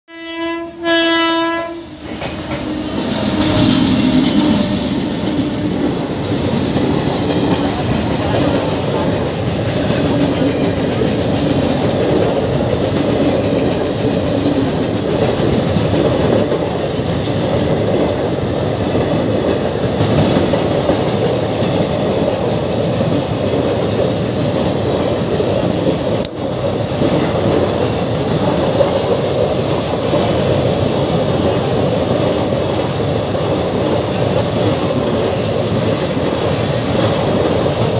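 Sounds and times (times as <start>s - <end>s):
train horn blasts: 0.1s - 5.6s
train wheels rumbling on track: 0.2s - 37.9s.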